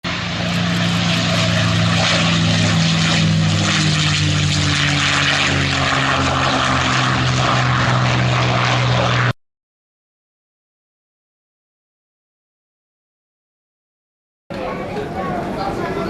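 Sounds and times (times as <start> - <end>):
jet aircraft rushing hiss: 0.1 - 9.3.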